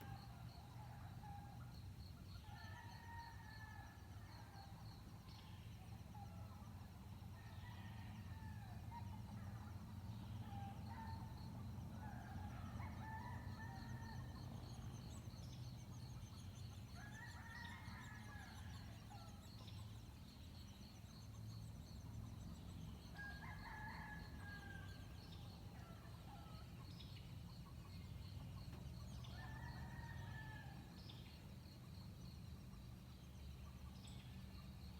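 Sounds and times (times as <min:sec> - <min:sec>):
insect trill: 0:00.0 - 0:34.9.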